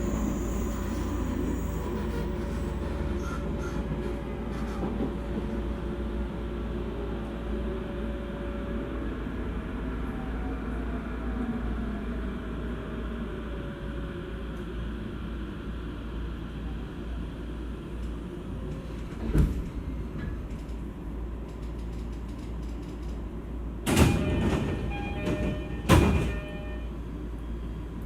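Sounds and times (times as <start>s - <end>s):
sliding train doors: 0.0s - 5.8s, 18.0s - 26.8s
train interior hum: 0.0s - 28.0s.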